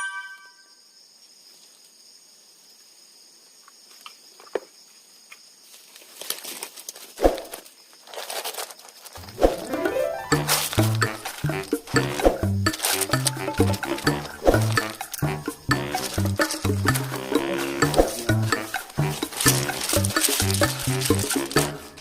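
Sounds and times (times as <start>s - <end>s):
rustling and crinkling: 5.6s - 22.0s
insects trilling: 10.4s - 22.0s.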